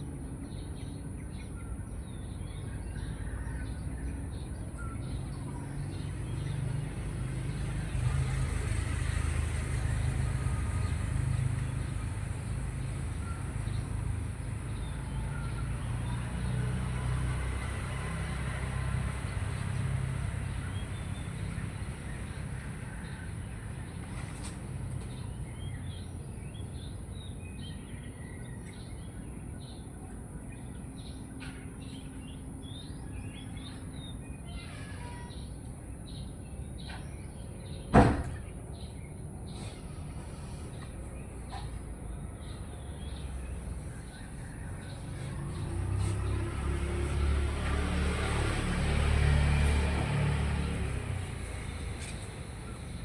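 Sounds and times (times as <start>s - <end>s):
birds chirping: 0.0s - 53.0s
distant traffic rumble: 0.0s - 53.0s
sharp knock: 37.9s - 38.4s.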